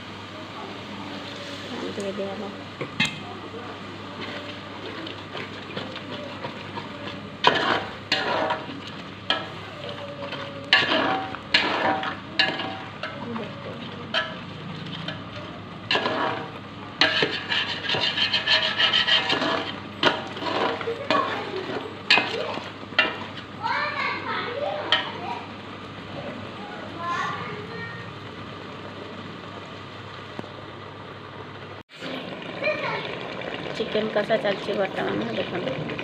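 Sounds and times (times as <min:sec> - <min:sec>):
frying sizzle: 0:00.0 - 0:36.0
spoon scraping metal pot: 0:05.6 - 0:13.2, 0:15.9 - 0:23.4.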